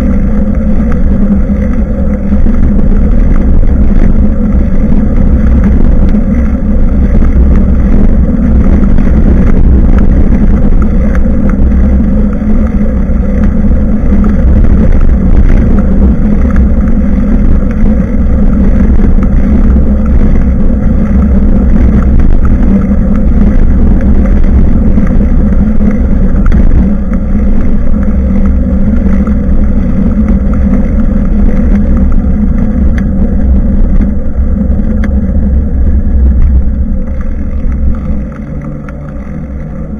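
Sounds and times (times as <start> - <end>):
wind and road rumble: 0.0 - 39.9.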